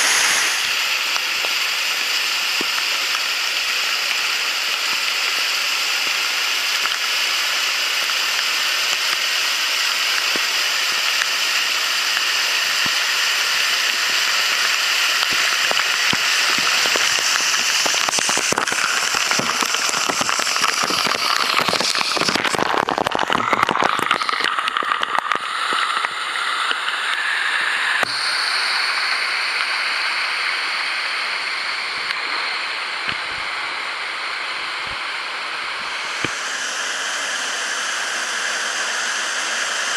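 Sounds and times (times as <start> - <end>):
waterfall rushing: 0.0 - 39.9
crackly splashing: 13.8 - 28.2.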